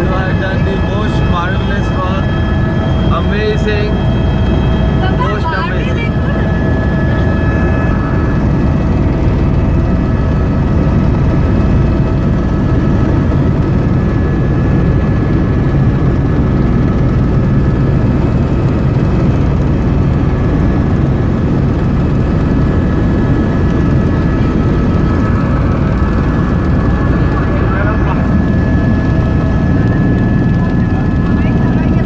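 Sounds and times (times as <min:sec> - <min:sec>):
whining tones: 0:00.0 - 0:15.6
helicopter engine and rotor drone: 0:00.0 - 0:32.0.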